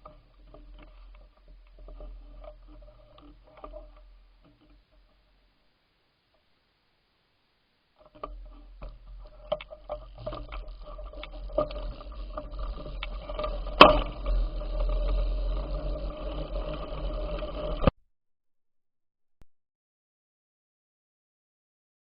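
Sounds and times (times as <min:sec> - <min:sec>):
bike clicks and rattles: 0:08.1 - 0:17.9.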